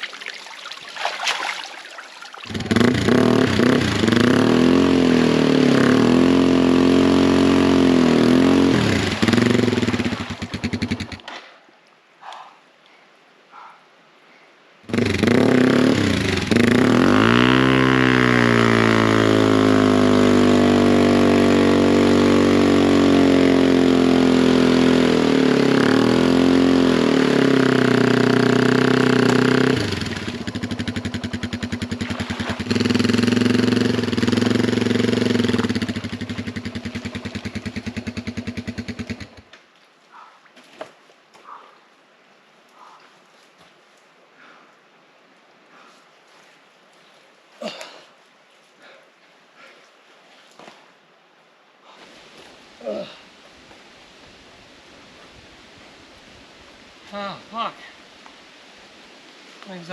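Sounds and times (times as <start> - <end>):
motorcycle engine revving: 2.5 - 11.3, 14.9 - 39.5.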